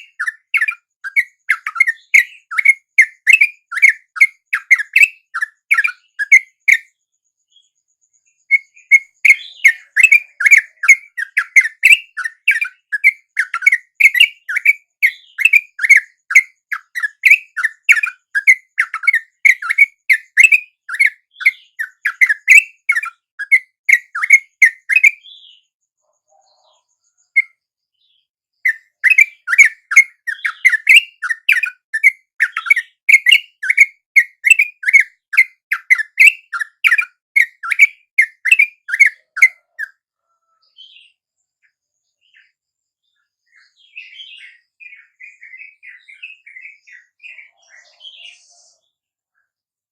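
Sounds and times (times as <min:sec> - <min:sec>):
bulbuls chattering whistled calls: 0:00.0 - 0:06.8, 0:08.5 - 0:25.5, 0:28.7 - 0:40.0.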